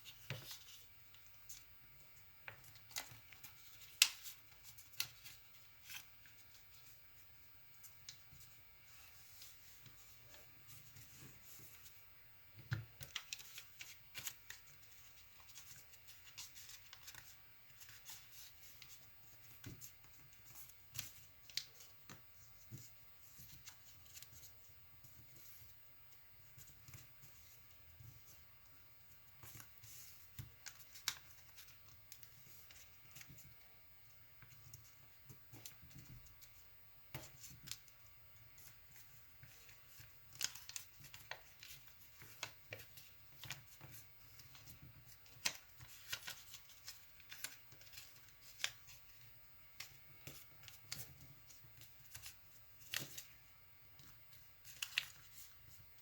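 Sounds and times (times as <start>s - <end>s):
paper being folded and creased: 2.4s - 12.0s, 13.0s - 25.7s, 29.4s - 33.5s, 38.6s - 53.4s, 54.0s - 56.0s.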